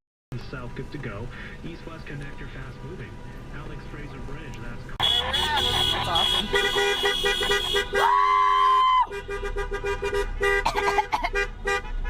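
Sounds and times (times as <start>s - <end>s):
vehicle horns honking: 5.0s - 12.0s.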